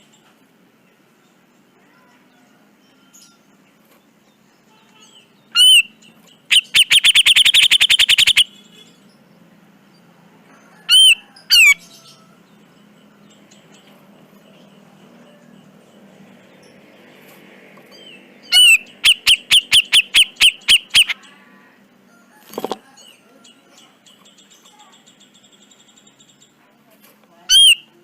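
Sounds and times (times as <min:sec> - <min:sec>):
bird calling harshly: 0:05.5 - 0:05.9, 0:06.5 - 0:08.6, 0:18.5 - 0:21.3, 0:27.5 - 0:28.0.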